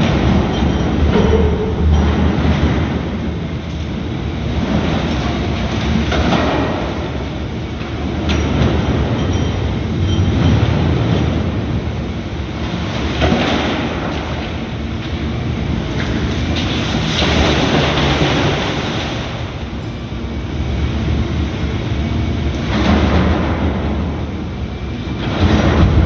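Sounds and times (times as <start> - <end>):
excavator diesel engine running: 0.0 - 13.3.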